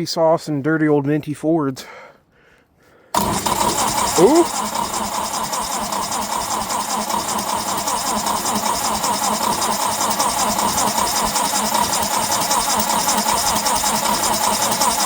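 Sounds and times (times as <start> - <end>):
engine cranking by starter: 3.1 - 15.0.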